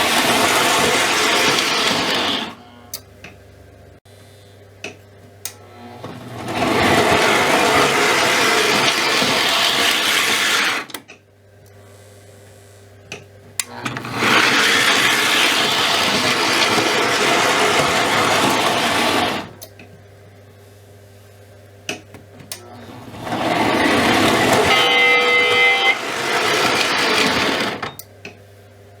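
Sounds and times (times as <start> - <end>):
model locomotive motor whirring: 0.0 - 3.0, 5.8 - 11.0, 13.6 - 19.6, 22.8 - 28.0
short horn blast: 24.2 - 26.2.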